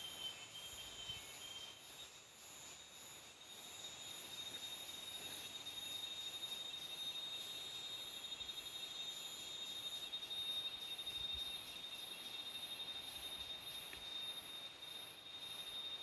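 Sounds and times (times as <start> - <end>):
pulsing insect chorus: 0.0 - 16.0.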